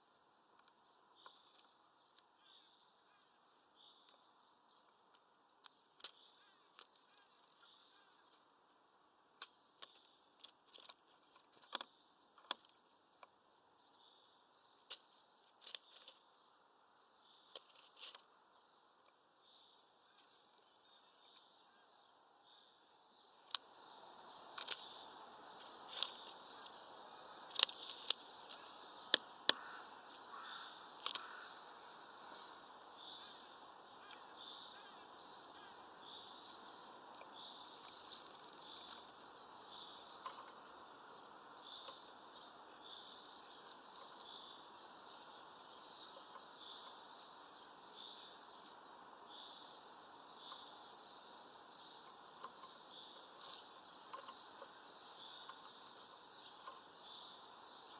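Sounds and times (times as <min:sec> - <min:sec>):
small birds chirping: 0:00.0 - 0:57.9
bird pecking seeds on wooden feeder: 0:27.5 - 0:31.4.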